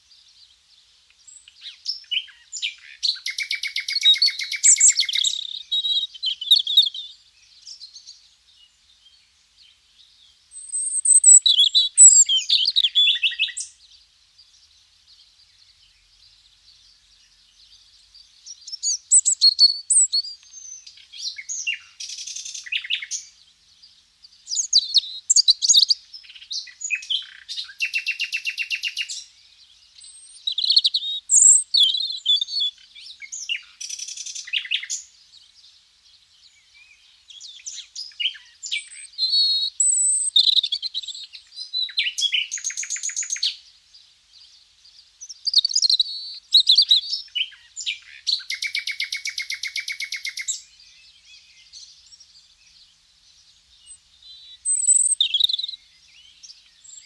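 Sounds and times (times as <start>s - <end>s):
wild birds singing and calling: 0.0s - 57.0s
rapid bird trill: 10.7s - 13.6s.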